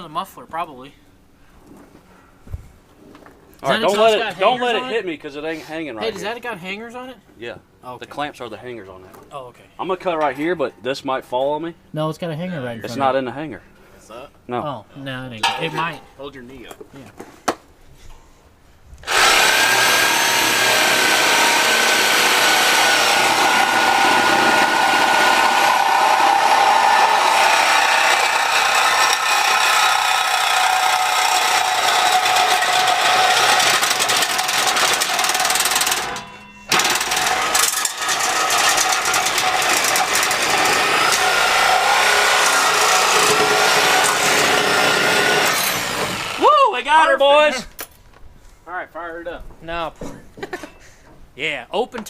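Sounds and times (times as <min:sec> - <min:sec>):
reciprocating saw cutting metal pipe: 0:19.0 - 0:46.4.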